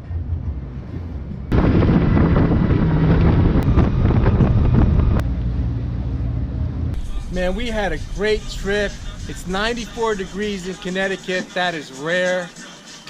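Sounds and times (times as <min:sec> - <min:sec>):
boat engine hum: 0:00.0 - 0:10.9
wind on microphone: 0:01.5 - 0:05.3.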